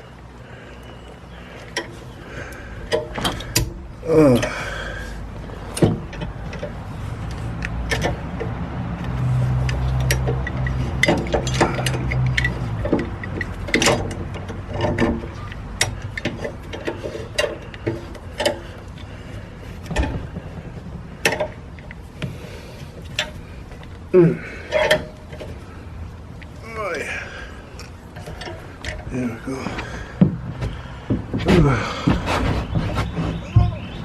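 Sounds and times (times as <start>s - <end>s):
hand tools clinking on metal: 9.6s - 18.7s.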